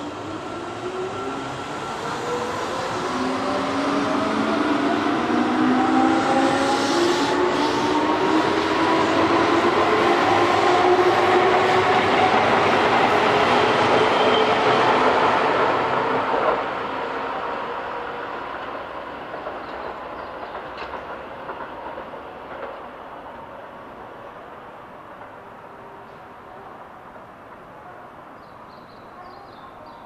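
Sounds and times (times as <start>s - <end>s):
electric train moving on rails: 0.0s - 30.0s
faint clicks from rails: 18.5s - 23.1s, 25.0s - 25.5s.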